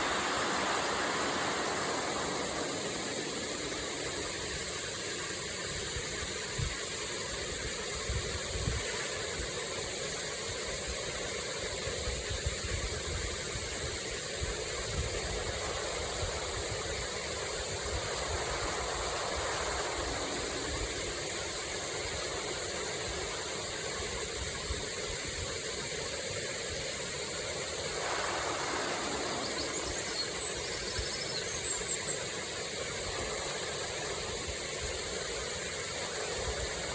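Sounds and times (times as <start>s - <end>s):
waterfall rushing: 0.0s - 6.4s, 14.1s - 36.9s.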